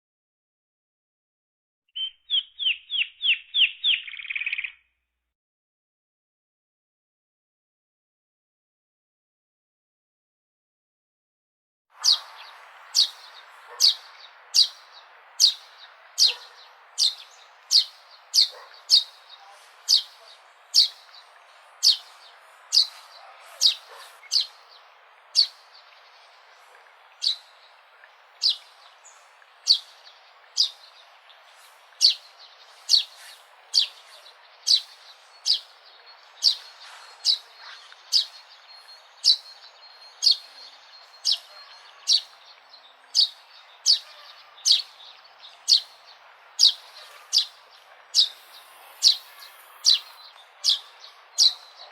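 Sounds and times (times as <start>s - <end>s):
sparrow chirping: 2.0s - 4.8s, 12.0s - 51.9s
faint steady hiss: 12.0s - 51.9s.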